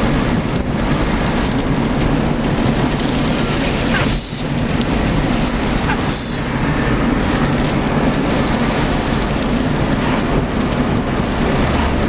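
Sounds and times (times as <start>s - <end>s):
heavy rain on a car: 0.0s - 12.0s.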